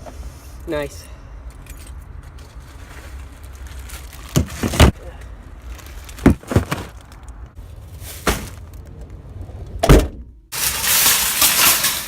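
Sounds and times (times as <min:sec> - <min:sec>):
dull thuds and knocks: 0:06.2 - 0:06.9.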